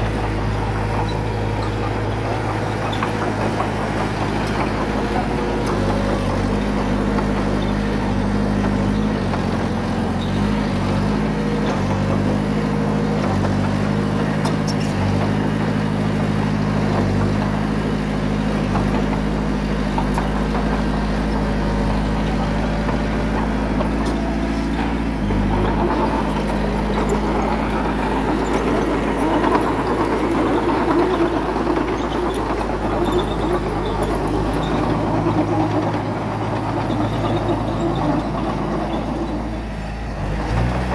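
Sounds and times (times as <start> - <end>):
bulldozer diesel engine running: 0.0 - 40.9
rough loud noise: 10.4 - 40.9.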